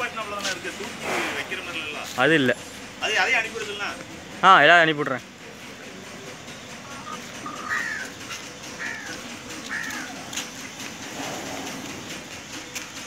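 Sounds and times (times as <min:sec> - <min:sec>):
bird calling: 0:06.0 - 0:13.0.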